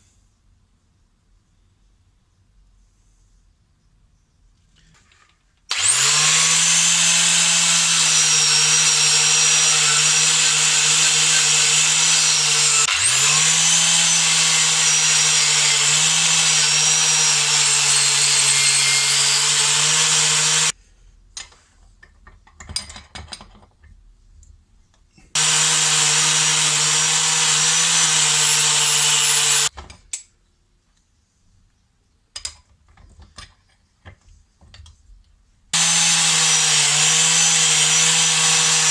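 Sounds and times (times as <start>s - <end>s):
small power tool motor running: 5.7s - 20.7s, 25.4s - 29.7s, 35.8s - 38.9s.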